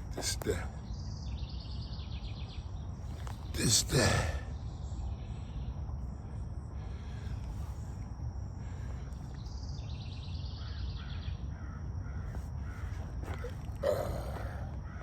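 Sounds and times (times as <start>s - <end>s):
bird calling: 0.0s - 15.0s
low outdoor rumble: 0.0s - 15.0s.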